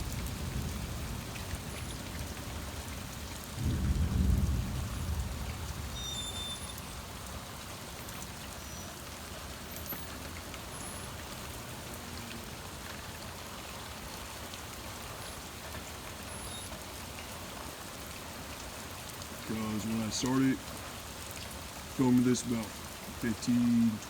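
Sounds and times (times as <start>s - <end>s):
low thunder rumble: 0.0s - 7.2s
rain hissing: 0.0s - 24.0s.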